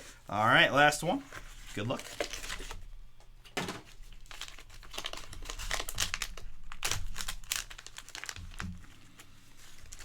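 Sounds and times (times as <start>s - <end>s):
plastic packaging crinkling and tearing: 1.6s - 2.9s, 3.9s - 10.0s.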